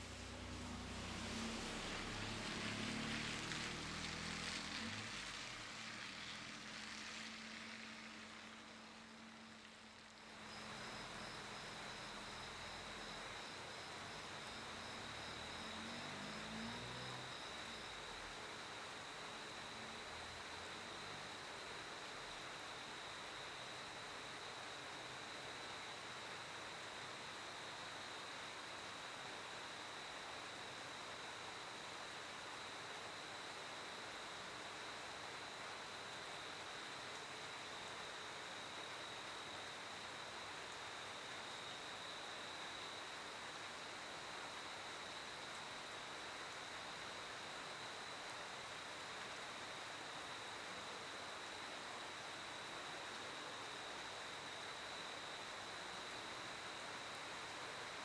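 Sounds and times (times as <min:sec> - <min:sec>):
passing vehicle: 0:00.0 - 0:08.1
hiss of night air: 0:00.0 - 0:58.0
crickets trilling: 0:10.2 - 0:21.3.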